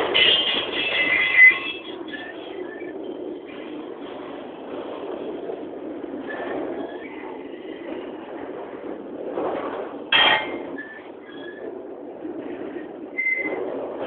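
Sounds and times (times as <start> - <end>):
freight train cars rumbling past: 0.0 - 14.0
loud metal clank: 10.1 - 10.7
faint squeals: 10.2 - 11.7, 12.7 - 13.6.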